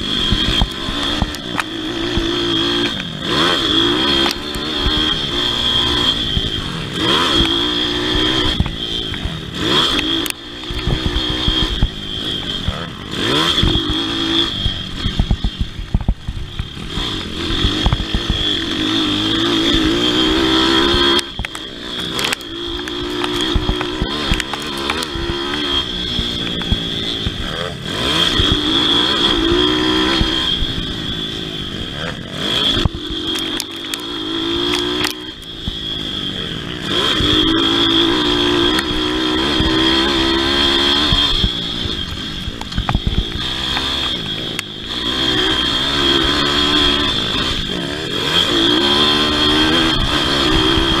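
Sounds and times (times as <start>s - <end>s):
pit bike engine racing: 0.0s - 51.0s.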